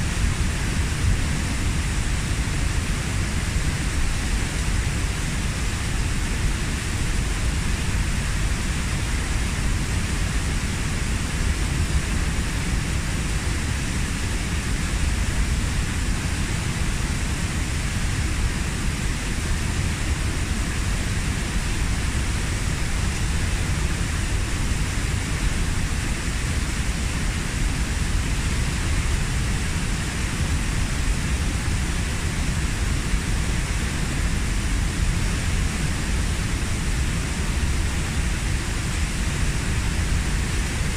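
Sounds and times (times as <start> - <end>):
waterfall rushing into pool: 0.0 - 40.9.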